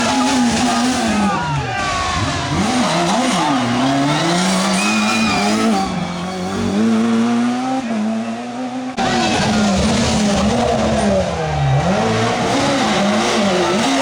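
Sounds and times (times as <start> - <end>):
rally car engine revving: 0.0 - 14.0
tyre squeal: 2.8 - 7.2.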